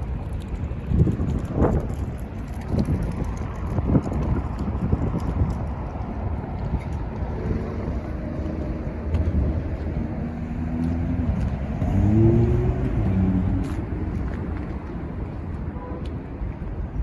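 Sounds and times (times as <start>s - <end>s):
street traffic rumble: 0.0s - 17.0s
vehicle engine accelerating: 7.1s - 15.4s.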